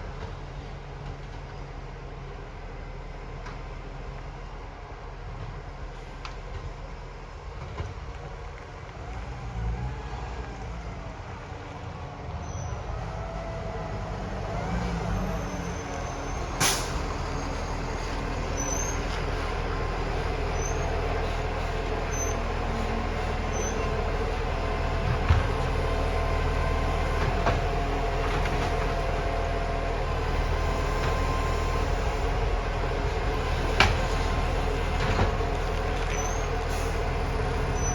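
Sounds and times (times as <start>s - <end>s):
garbage truck engine running: 10.5s - 37.9s.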